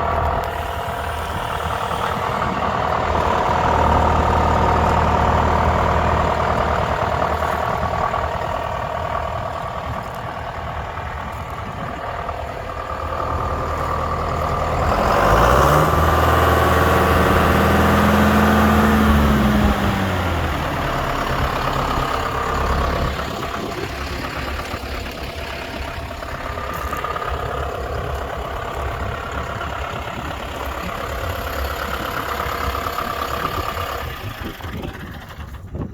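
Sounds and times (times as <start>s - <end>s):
tractor diesel engine idling: 0.0s - 35.9s
tractor engine revving: 0.0s - 35.9s.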